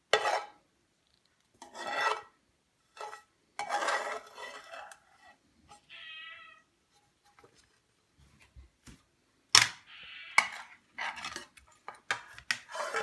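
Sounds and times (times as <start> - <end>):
utensil scraping frying pan: 0.0 - 0.6, 1.6 - 5.9, 10.3 - 13.0.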